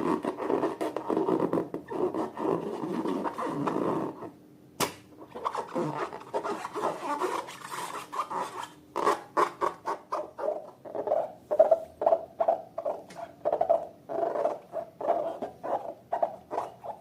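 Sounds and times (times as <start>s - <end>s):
sharp click: 4.8s - 5.1s.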